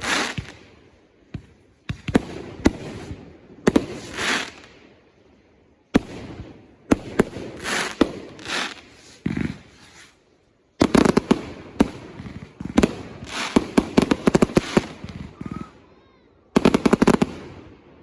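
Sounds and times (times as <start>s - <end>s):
fireworks bangs: 0.0s - 0.7s, 1.3s - 4.7s, 5.9s - 10.2s, 10.8s - 15.8s, 16.5s - 17.8s
fireworks hissing whoosh: 0.0s - 0.7s, 1.9s - 4.8s, 7.1s - 15.8s.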